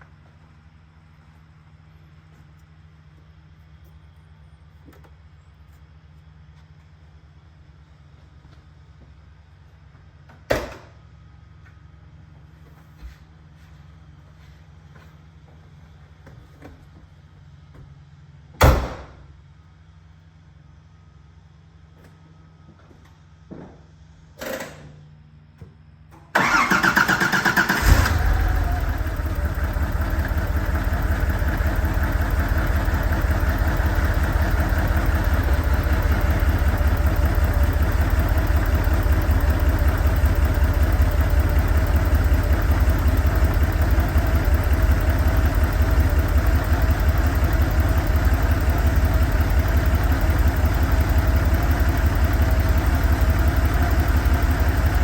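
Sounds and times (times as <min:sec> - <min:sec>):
car engine starting and idling: 0:26.3 - 0:55.0
starter motor cranking: 0:26.4 - 0:29.9.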